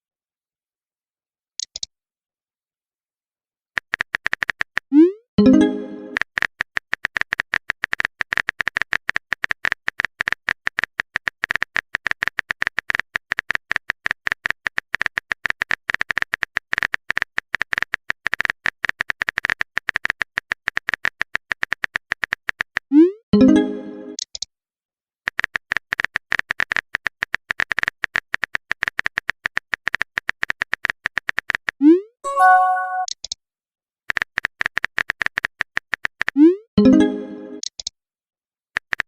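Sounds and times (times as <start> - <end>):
keyboard typing clicks: 1.6 - 1.9, 3.8 - 22.6, 32.3 - 33.4, 34.1 - 37.9
rising message chime: 32.3 - 33.1.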